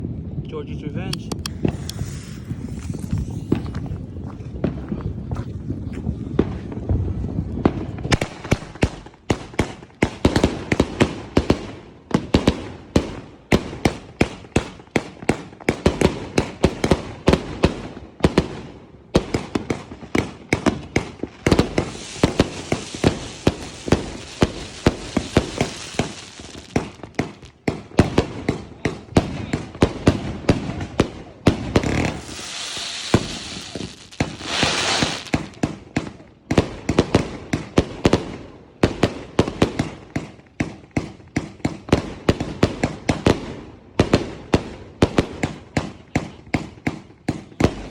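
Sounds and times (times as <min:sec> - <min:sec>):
firework barrage firing: 0:07.6 - 0:40.0
high hiss: 0:21.8 - 0:27.1, 0:31.8 - 0:35.6.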